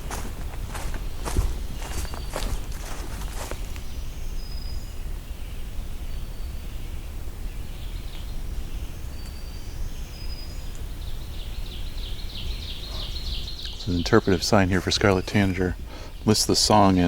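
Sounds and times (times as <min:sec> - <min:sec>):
steady low rumble: 0:00.0 - 0:17.0
bird singing short phrases: 0:07.7 - 0:17.0.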